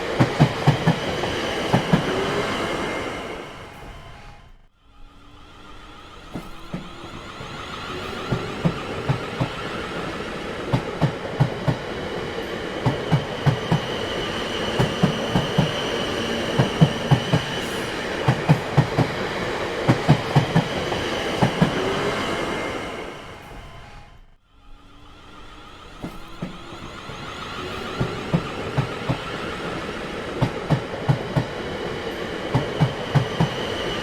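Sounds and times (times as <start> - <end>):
faint train whine: 0.0 - 34.0
train rolling rumble: 0.0 - 34.0
train wheels clacking over rail joints: 6.3 - 22.1.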